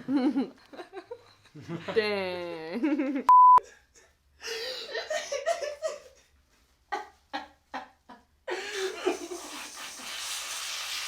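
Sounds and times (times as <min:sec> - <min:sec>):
steady hiss: 0:08.8 - 0:11.0.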